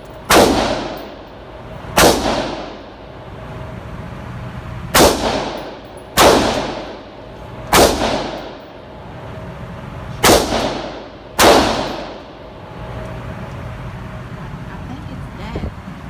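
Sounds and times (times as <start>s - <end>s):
gunshots with echo: 0.3s - 1.3s, 2.0s - 2.9s, 5.0s - 7.0s, 7.7s - 8.6s, 10.2s - 12.3s.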